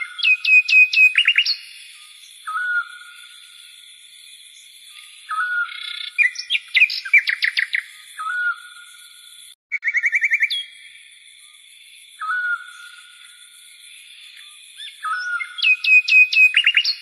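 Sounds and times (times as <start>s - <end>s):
whistled bird note: 14.8s - 17.0s.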